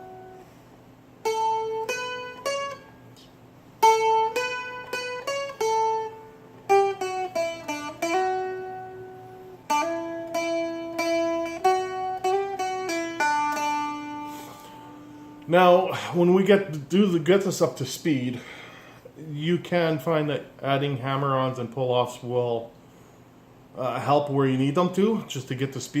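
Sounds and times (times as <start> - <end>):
dulcimer melody with drone strings: 3.8 - 15.1.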